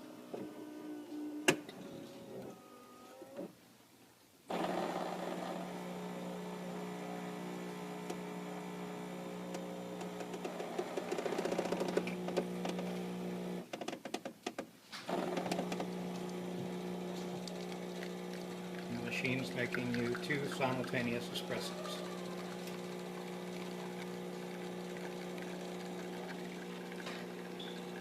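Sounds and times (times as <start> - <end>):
coffee machine motor humming: 4.5 - 13.7, 15.1 - 28.0.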